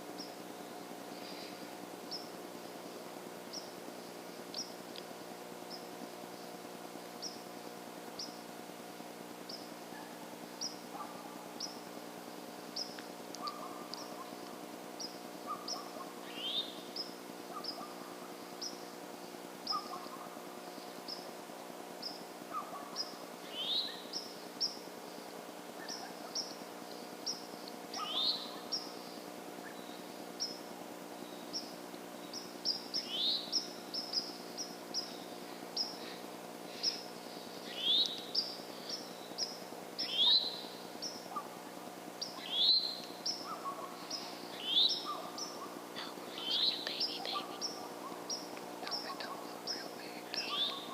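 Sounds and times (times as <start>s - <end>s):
birds chirping: 15.0s - 21.3s, 22.0s - 50.9s
rising whistled bird call: 40.0s - 40.6s.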